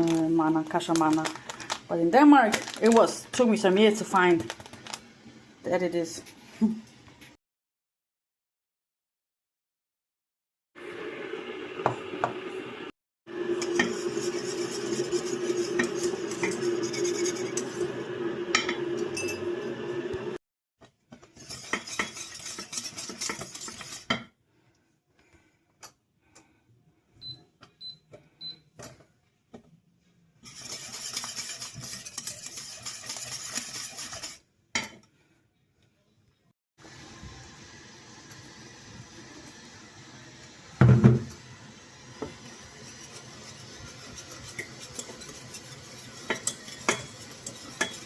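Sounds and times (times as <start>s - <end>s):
kitchen noise: 0.0s - 7.1s, 13.4s - 20.4s, 21.1s - 24.3s, 30.4s - 35.1s, 42.1s - 48.0s
spoon stirring and clinking in pot: 13.6s - 19.6s, 21.4s - 24.3s, 30.4s - 35.1s, 42.4s - 48.0s.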